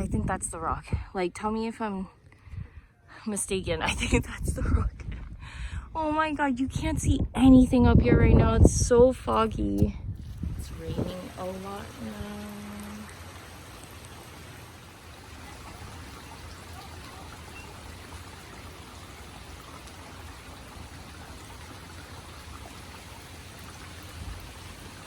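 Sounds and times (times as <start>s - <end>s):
heavy rain: 10.4s - 25.0s.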